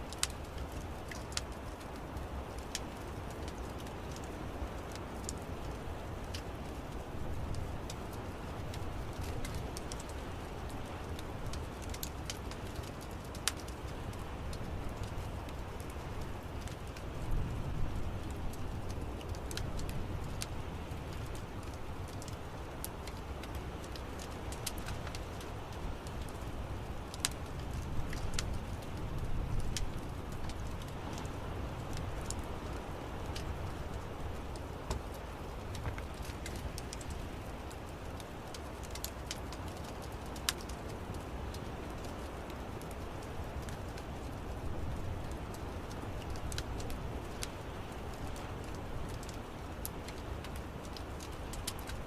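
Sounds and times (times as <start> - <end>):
low rumble of flames: 0.0 - 52.0
wood fire crackling: 0.0 - 52.0.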